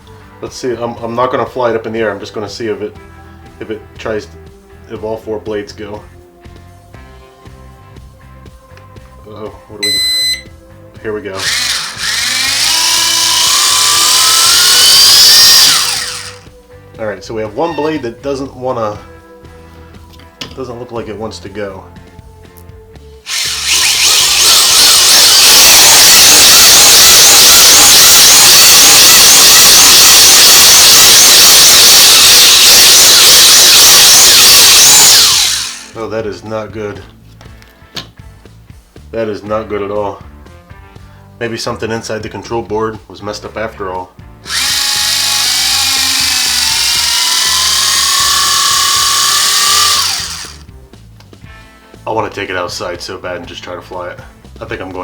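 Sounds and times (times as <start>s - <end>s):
drone motors high whine: 11.4s - 16.4s, 23.3s - 35.9s, 44.5s - 50.6s.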